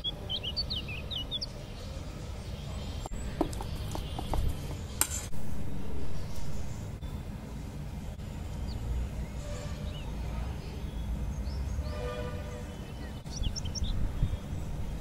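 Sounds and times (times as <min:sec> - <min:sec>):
high bird chirps: 0:00.0 - 0:04.5, 0:10.8 - 0:14.8
steady low rumble: 0:12.9 - 0:15.0.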